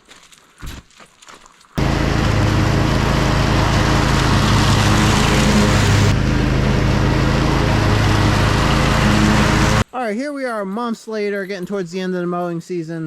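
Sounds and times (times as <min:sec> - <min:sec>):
lawn mower engine running: 0:01.8 - 0:09.8.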